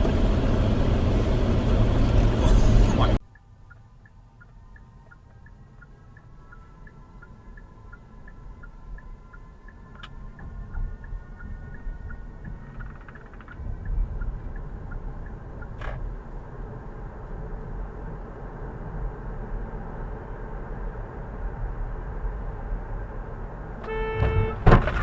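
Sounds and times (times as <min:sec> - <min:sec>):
car engine and road rumble: 0:00.0 - 0:25.0
light regular ticking: 0:03.2 - 0:16.6.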